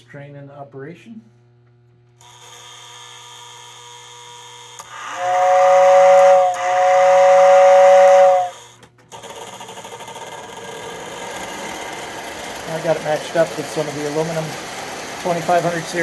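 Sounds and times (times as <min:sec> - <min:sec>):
small electric motor running: 0:02.2 - 0:16.0
two-note air whistle blasts: 0:05.0 - 0:08.6.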